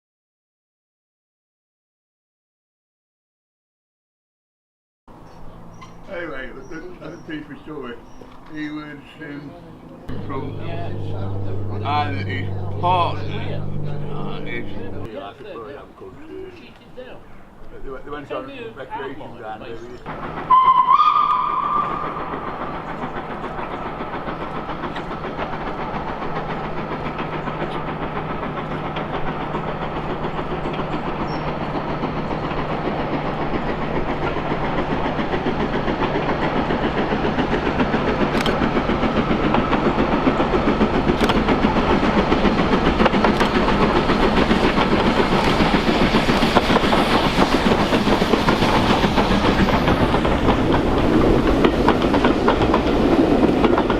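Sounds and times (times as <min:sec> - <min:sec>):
steam train approaching: 0:05.1 - 0:53.9
wheels clattering over rail joints: 0:20.0 - 0:53.9
train whistle blast: 0:20.4 - 0:22.4.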